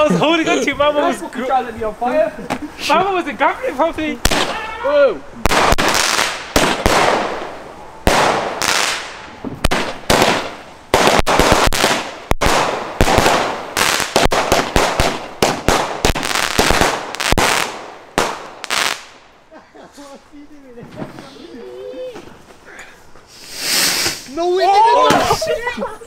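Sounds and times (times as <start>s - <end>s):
fireworks bangs with crackling: 4.0s - 4.7s, 5.4s - 19.3s, 23.3s - 24.4s.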